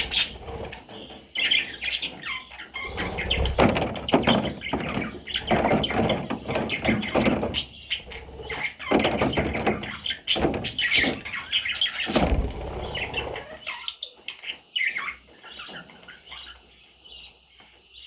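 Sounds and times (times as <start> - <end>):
chicks scuffling: 0.0 - 14.3
budgerigar chicks chirping: 0.0 - 18.0
thump: 12.0 - 13.0.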